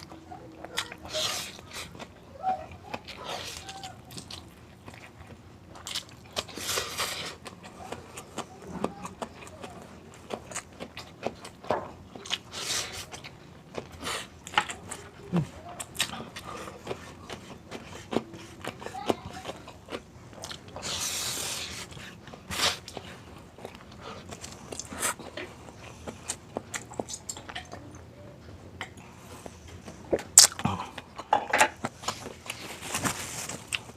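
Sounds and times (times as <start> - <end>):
crunchy bites and chewing: 30.2 - 31.0.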